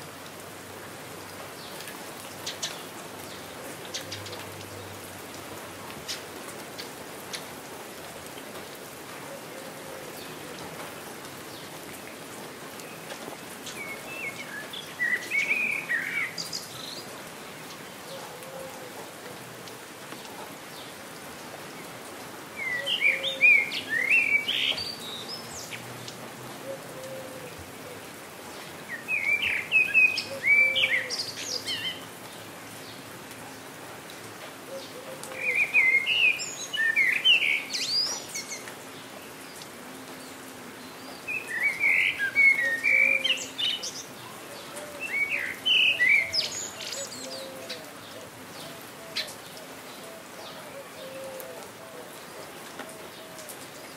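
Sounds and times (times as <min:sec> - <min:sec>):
steady rain: 0:00.0 - 0:53.9
songbird chirping: 0:09.6 - 0:18.6, 0:22.6 - 0:33.4, 0:34.7 - 0:53.9.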